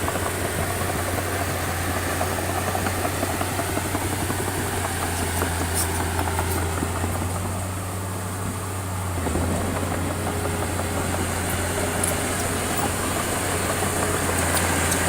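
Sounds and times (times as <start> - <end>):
heavy machinery diesel engine: 0.0 - 15.0
rough rattle: 9.2 - 15.0.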